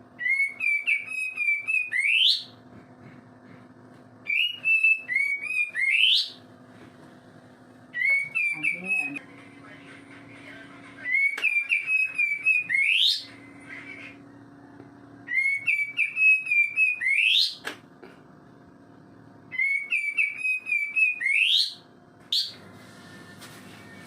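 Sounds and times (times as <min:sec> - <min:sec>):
songbird whistling: 0:00.2 - 0:02.6, 0:04.2 - 0:06.4, 0:07.9 - 0:09.2, 0:11.0 - 0:14.2, 0:15.2 - 0:17.6, 0:19.5 - 0:22.6.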